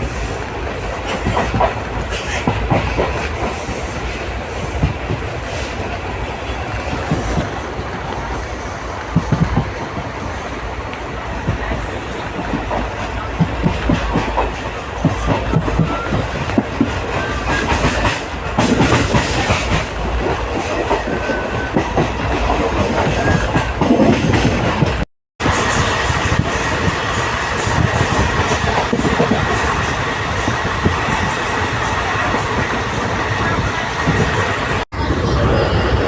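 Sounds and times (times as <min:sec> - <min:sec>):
train wheels clattering on rails: 0:00.0 - 0:36.0.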